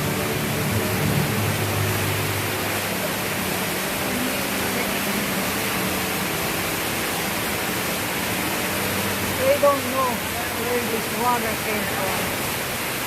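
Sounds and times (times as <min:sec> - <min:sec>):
rushing waterfall: 0:00.0 - 0:13.0.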